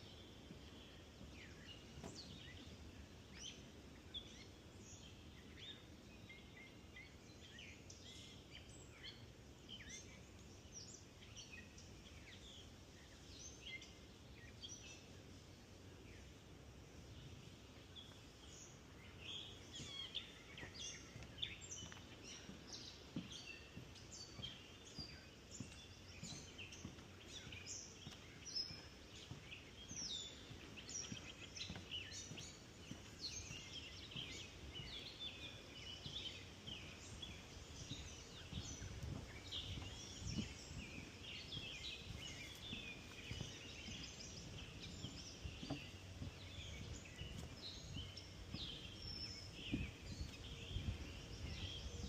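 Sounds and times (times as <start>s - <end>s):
birds chirping and trilling: 16.1s - 52.0s.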